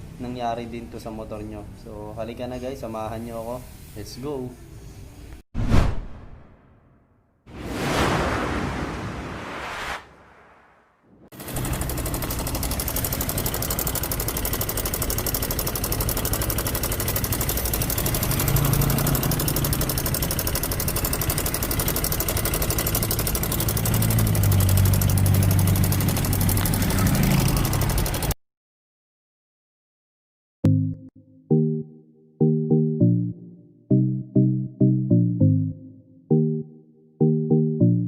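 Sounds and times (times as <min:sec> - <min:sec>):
scooter engine running: 0:11.3 - 0:28.4
rapid metallic engine rattle: 0:11.4 - 0:28.3.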